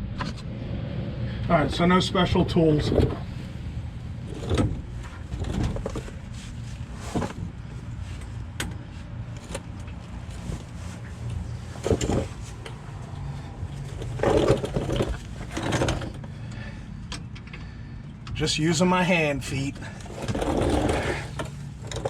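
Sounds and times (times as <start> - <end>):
metal clicks and knocks: 4.3 - 6.2, 13.8 - 16.2.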